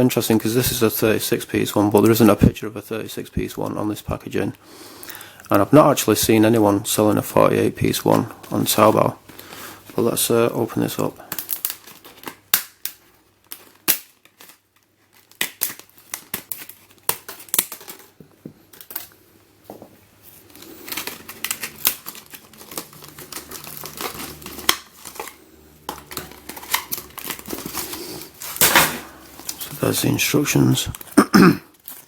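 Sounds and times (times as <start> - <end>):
plastic and paper crinkling: 5.8 - 19.2, 20.2 - 32.0.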